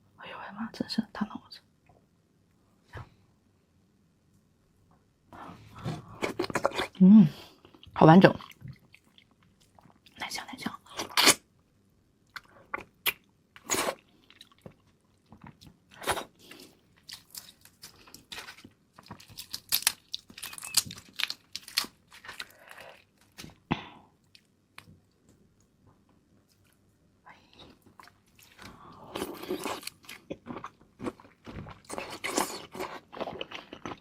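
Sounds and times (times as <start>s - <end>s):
crunching and chewing crab shell: 12.3s - 24.9s, 27.9s - 34.0s.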